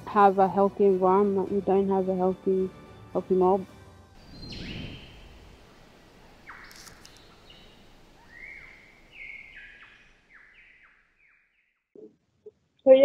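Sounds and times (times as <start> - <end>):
light outdoor hiss: 0.0 - 11.2
bird calls sweeping down: 4.2 - 5.5, 6.4 - 11.0.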